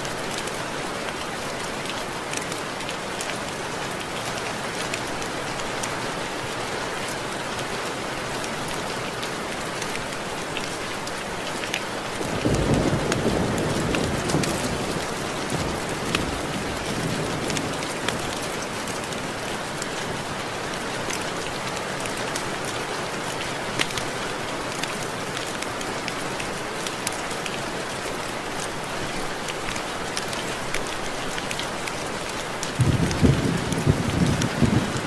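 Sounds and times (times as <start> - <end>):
rain drops ticking on window glass: 9.6 - 20.1, 20.8 - 35.0
low thunder rumble: 32.8 - 35.0.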